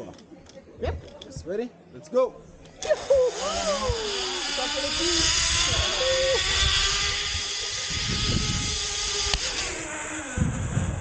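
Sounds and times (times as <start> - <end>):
zipline trolley whirring on cable: 2.6 - 11.0
wind buffeting microphone: 3.3 - 11.0.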